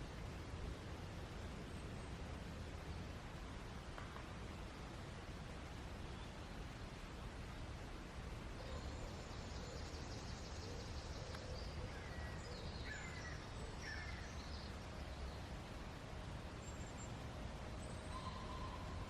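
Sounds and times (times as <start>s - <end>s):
low background noise: 0.0s - 19.0s
bird chirps: 17.8s - 19.0s.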